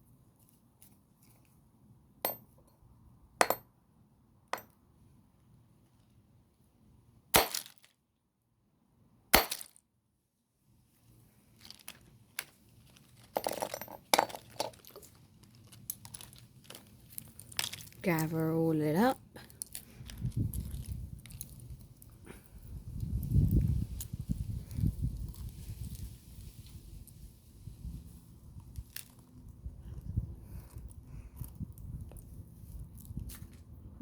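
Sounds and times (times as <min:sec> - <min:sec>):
broken plastic pieces rattling: 0:11.6 - 0:18.0.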